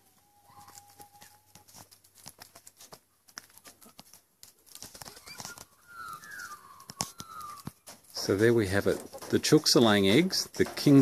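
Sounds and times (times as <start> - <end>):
soft clicks and crunches: 0.5 - 11.0
faint whistled bird calls: 5.0 - 7.8.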